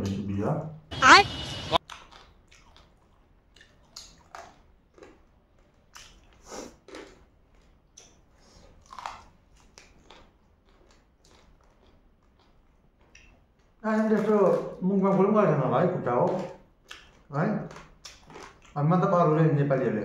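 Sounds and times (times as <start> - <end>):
biting and chewing with crunches: 1.8 - 14.8, 16.2 - 18.8.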